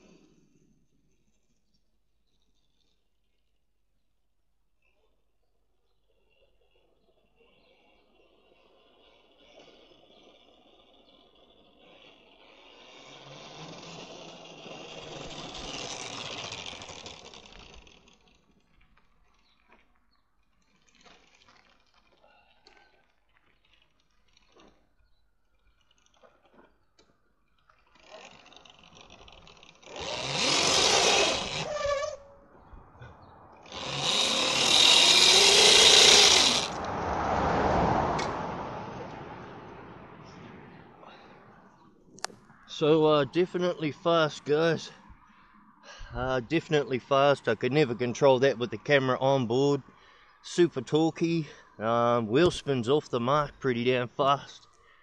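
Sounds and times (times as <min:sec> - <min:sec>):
electric motorbike whine: 0:07.6 - 0:19.6, 0:23.6 - 0:43.2
tyre noise: 0:25.7 - 0:39.0.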